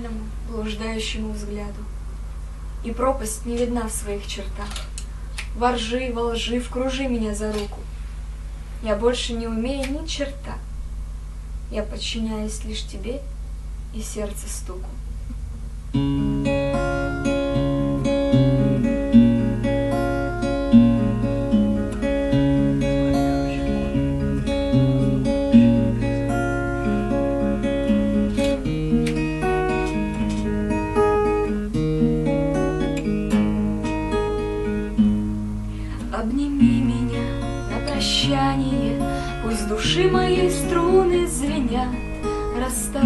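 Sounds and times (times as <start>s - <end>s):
acoustic guitar playing: 15.4s - 43.0s.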